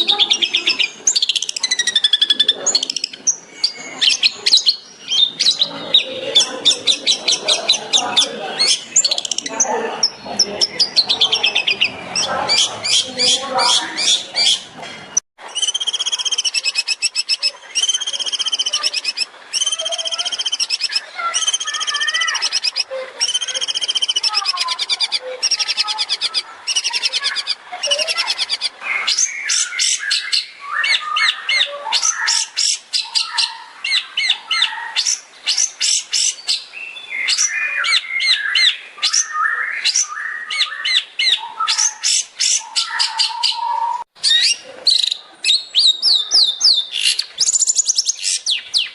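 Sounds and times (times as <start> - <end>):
bird singing whistled notes: 15.5 - 48.9.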